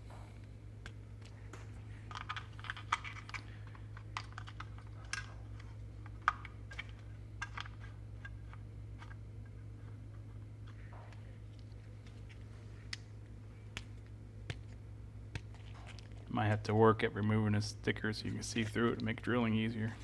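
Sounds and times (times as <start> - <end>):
low electrical hum: 0.0 - 20.0
small parts clicking and tapping: 0.8 - 13.1.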